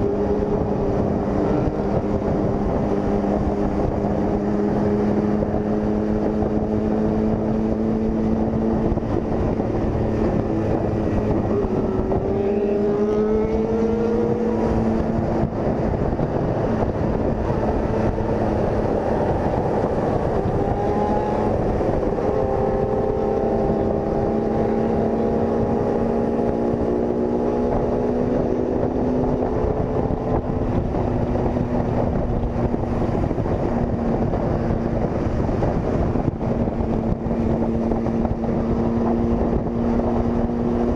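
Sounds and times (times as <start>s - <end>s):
motorcycle engine running: 0.0s - 40.9s
wind rushing over microphone: 0.0s - 40.9s.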